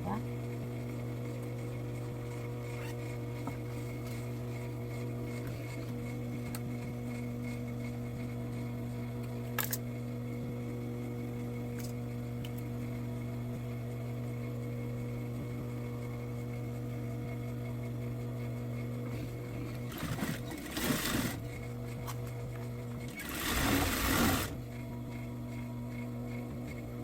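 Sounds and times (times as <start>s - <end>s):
sewing machine motor hum: 10.6s - 27.0s
sewing machine stitching: 19.8s - 21.6s, 23.0s - 24.6s.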